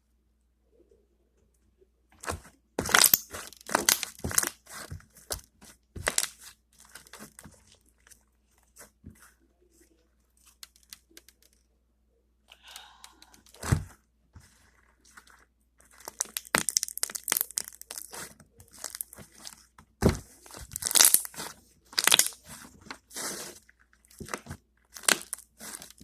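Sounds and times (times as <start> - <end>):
slime wet pops and crackles: 16.0 - 18.2, 20.8 - 21.4, 22.0 - 22.3.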